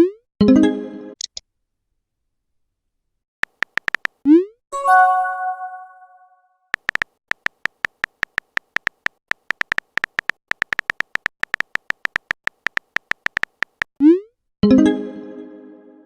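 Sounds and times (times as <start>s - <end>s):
phone keyboard typing clicks: 3.4s - 4.2s, 6.7s - 13.9s.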